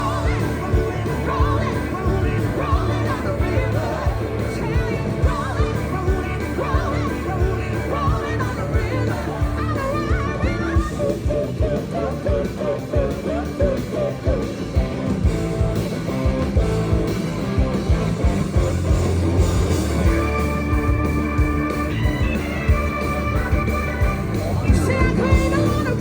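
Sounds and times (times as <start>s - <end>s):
person singing: 0.0s - 14.9s, 24.6s - 26.0s
drum beat: 0.0s - 26.0s
live rock band: 0.0s - 26.0s.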